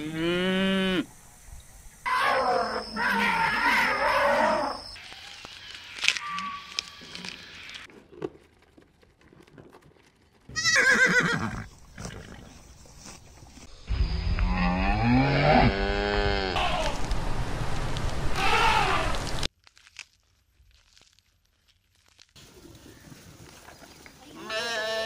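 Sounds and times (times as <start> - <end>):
horse whinnying: 10.5 - 12.3.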